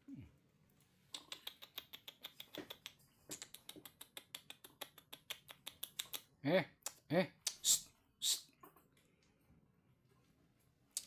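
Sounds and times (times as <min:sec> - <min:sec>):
baby monkeys sucking milk: 0:01.0 - 0:06.3.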